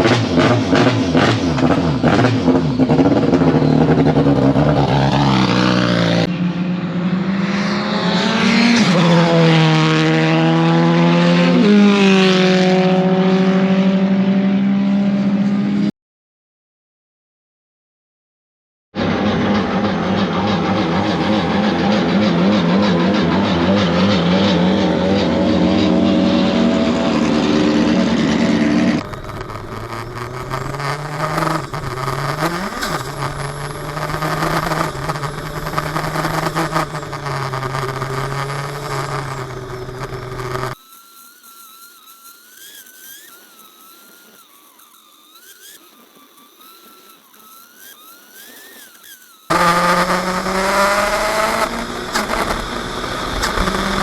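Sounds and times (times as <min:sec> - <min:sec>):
race car engine: 0:00.0 - 0:15.9, 0:19.0 - 0:40.8, 0:47.8 - 0:54.0
faint wavering whine: 0:25.2 - 0:54.0.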